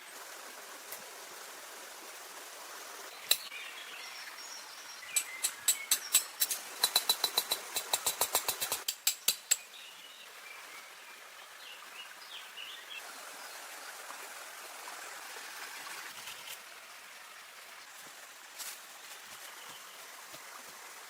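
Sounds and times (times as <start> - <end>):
running water: 0.0 - 21.0
faint bird chirps: 3.1 - 6.6.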